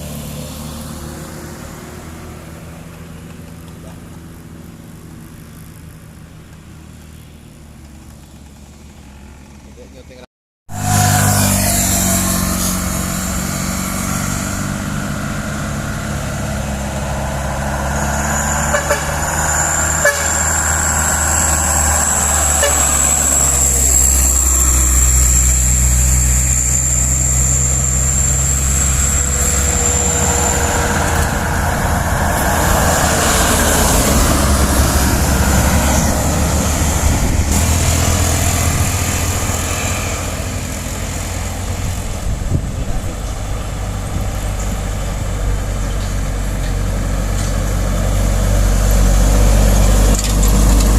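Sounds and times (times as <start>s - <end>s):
diesel truck engines under load: 0.0s - 50.9s
truck horn: 10.7s - 14.4s, 18.2s - 25.0s.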